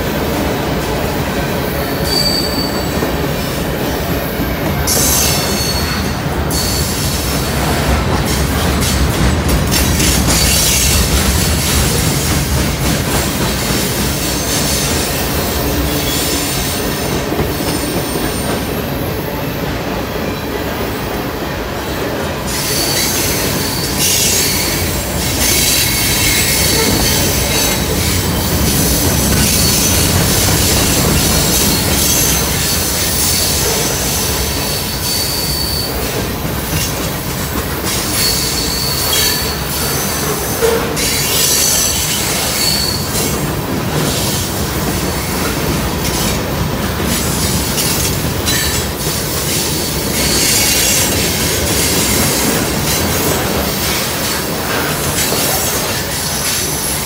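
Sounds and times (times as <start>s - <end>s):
freight train wheels rumbling: 0.0s - 57.0s
high-pitched wheel squeals: 1.9s - 3.0s, 33.1s - 36.1s, 38.0s - 43.2s.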